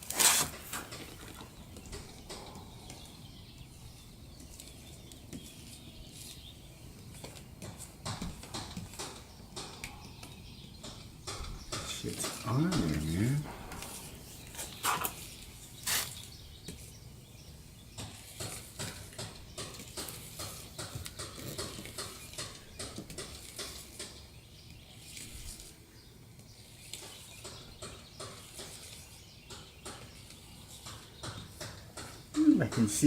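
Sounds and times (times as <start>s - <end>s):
hand scraping and clicking: 18.0s - 24.3s.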